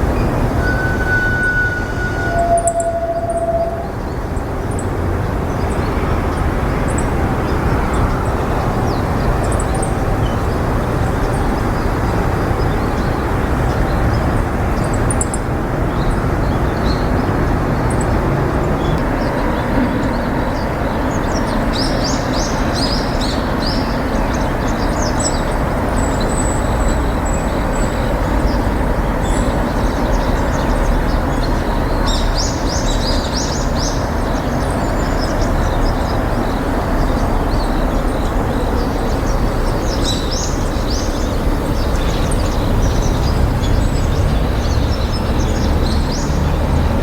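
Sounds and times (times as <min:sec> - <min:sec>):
birds chirping: 0:00.1 - 0:47.0
high whistled bird note: 0:00.6 - 0:04.0.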